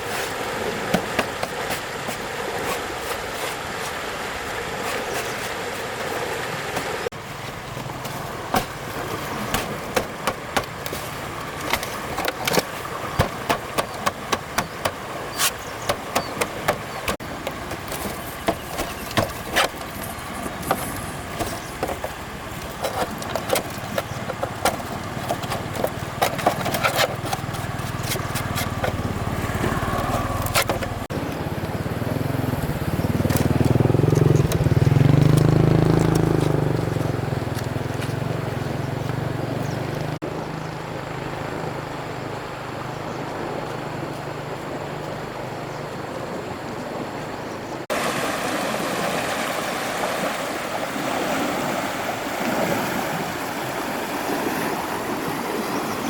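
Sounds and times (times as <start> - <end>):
low engine-like hum: 19.9 - 47.9.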